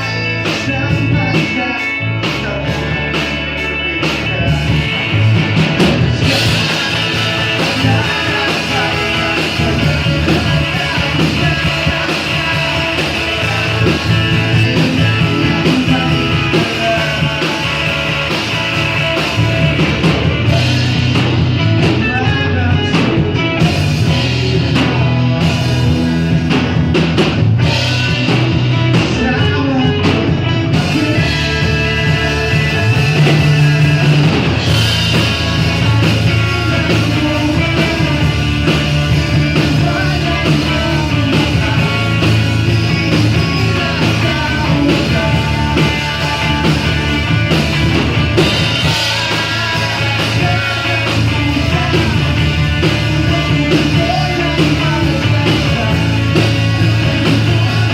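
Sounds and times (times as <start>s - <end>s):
person singing: 0.0s - 26.9s, 27.6s - 57.9s
bass guitar: 0.0s - 57.9s
drums: 0.0s - 57.9s.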